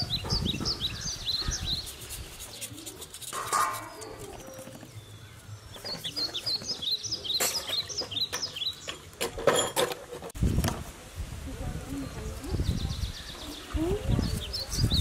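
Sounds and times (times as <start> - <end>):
small birds chirping: 0.0 - 9.2, 11.8 - 15.0
light knocks and scrapes: 1.9 - 5.0.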